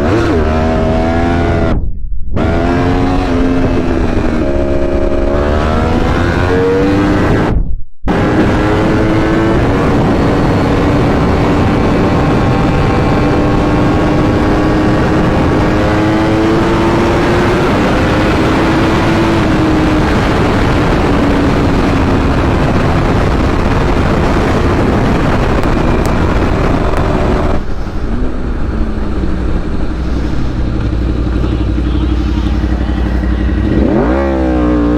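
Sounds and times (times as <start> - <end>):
loud wind rush: 0.0 - 34.9
vehicle engine running: 8.1 - 34.9.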